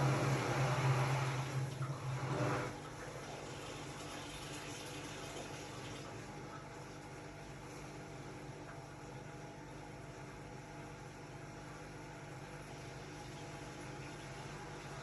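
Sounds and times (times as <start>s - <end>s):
washing machine running: 0.0s - 15.0s.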